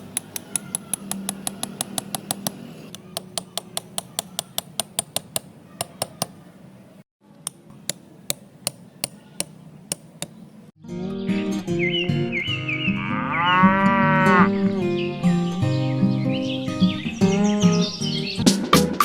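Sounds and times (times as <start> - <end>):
light sharp tapping: 0.1 - 6.4, 7.5 - 10.4.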